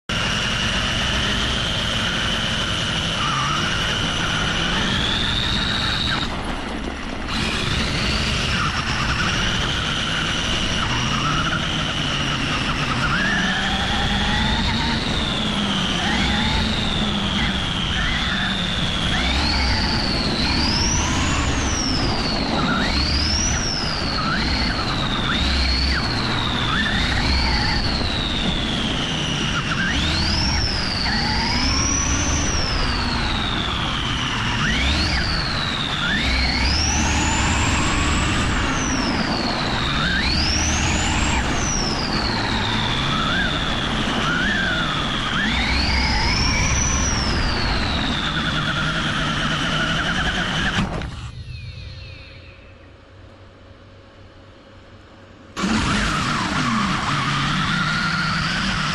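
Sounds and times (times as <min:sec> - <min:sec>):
model car engine revving: 0:00.1 - 0:51.4, 0:55.5 - 0:58.9.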